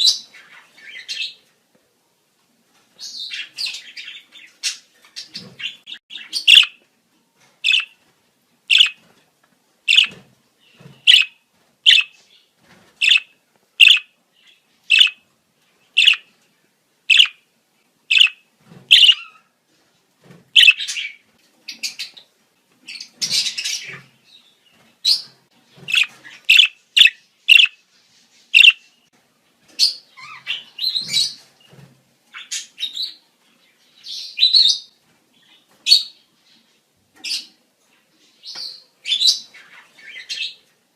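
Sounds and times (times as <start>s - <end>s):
budgerigars chirping: 3.1s - 6.8s, 7.6s - 8.0s, 8.7s - 9.0s, 9.9s - 10.2s, 11.0s - 12.2s, 13.0s - 15.2s, 15.9s - 16.3s, 17.1s - 17.4s, 18.1s - 19.4s, 20.6s - 22.2s, 25.9s - 27.8s, 28.6s - 28.9s.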